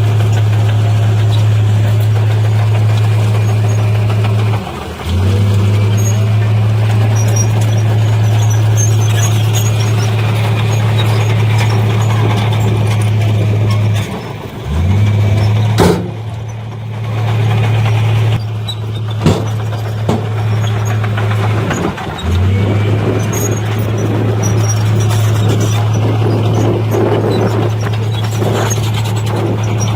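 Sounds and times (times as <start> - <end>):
diesel engine droning: 0.0 - 29.9
sharp knocks: 19.2 - 20.4.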